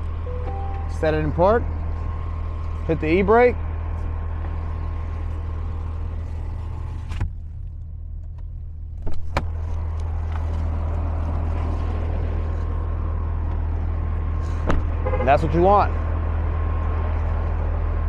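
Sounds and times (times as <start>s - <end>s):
vehicle engine idling: 0.0s - 18.0s
truck door opening knocks: 14.6s - 14.9s.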